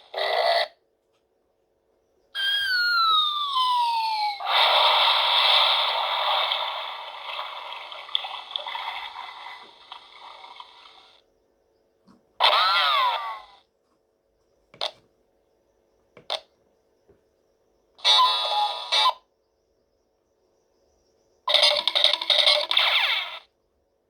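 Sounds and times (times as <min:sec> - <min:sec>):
descending electronic whistle: 0:02.4 - 0:04.6
electronic noise burst: 0:04.4 - 0:10.4.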